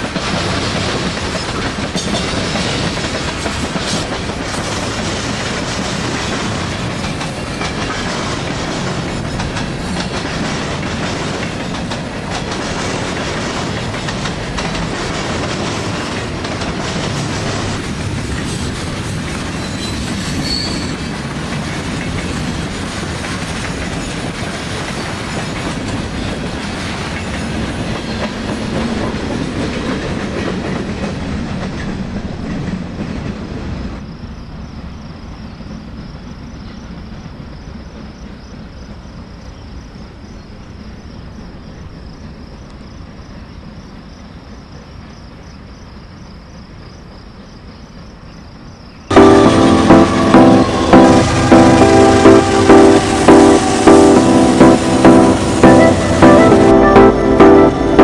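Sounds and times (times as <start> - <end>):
wheels clicking over rail joints: 0.0 - 33.8
freight train cars rolling: 0.0 - 58.0
crickets chirring: 33.6 - 49.1.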